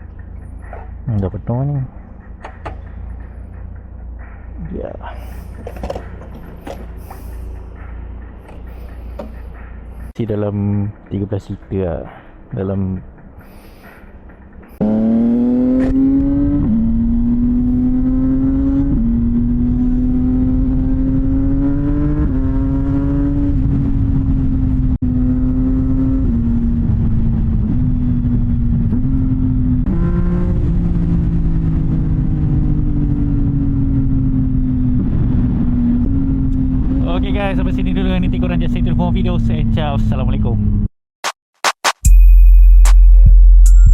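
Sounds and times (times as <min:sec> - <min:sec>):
motorcycle engine accelerating: 0:01.9 - 0:10.2, 0:13.1 - 0:40.9.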